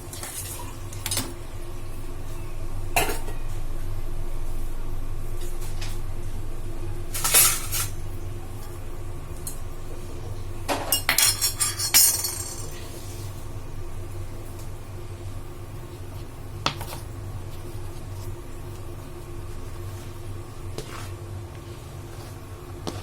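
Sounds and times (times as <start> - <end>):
steady low hum: 0.0 - 23.0
metal utensils clinking on cookware: 7.2 - 8.0, 10.7 - 12.9.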